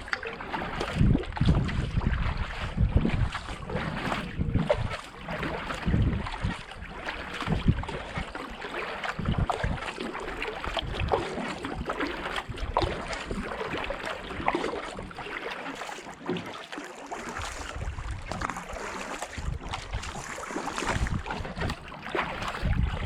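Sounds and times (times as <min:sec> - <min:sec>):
paddle splashing in water: 0:00.0 - 0:23.0
water running along hull: 0:00.0 - 0:23.0
wind buffeting microphone: 0:00.6 - 0:08.4, 0:09.2 - 0:09.9, 0:17.4 - 0:23.0.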